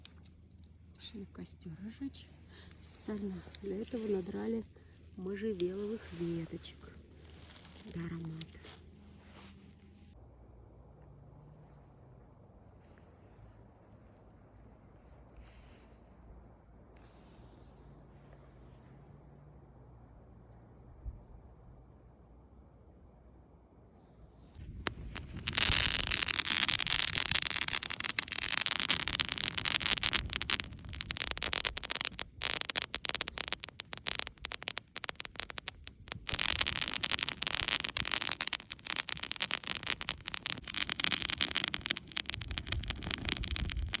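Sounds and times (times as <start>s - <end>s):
campfire crackling: 0.0s - 0.4s, 5.6s - 8.9s, 24.6s - 44.0s.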